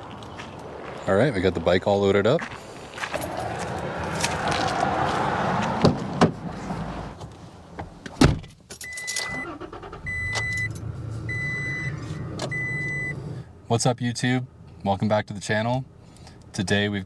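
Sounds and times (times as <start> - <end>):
engine humming: 0.0 - 8.2, 9.3 - 13.7
vehicle door shutting: 5.6 - 13.3.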